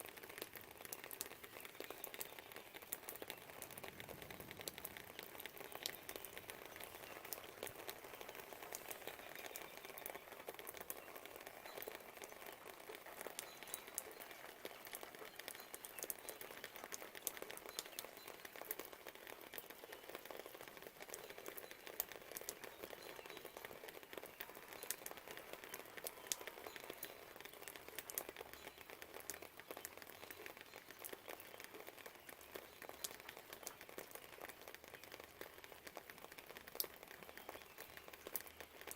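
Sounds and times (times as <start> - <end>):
light rain pattering: 0.0 - 38.9.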